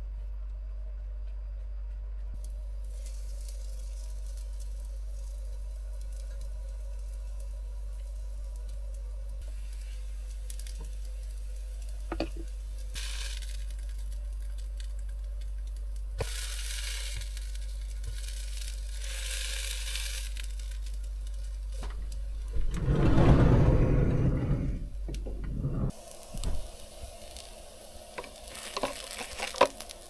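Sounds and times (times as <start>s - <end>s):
food frying in a pan: 2.4s - 22.5s, 25.9s - 30.0s
steady low hum: 20.7s - 28.8s.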